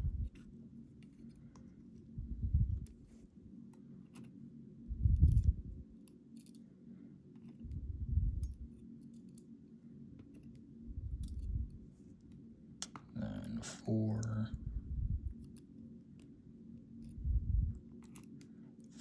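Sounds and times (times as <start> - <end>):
dull low thumps: 0.0 - 0.3, 2.2 - 2.9, 4.9 - 5.8, 7.7 - 8.5, 14.5 - 15.3, 17.2 - 17.8
small metal pins clicking: 5.2 - 6.6, 8.3 - 9.5, 10.2 - 11.5, 18.0 - 18.5.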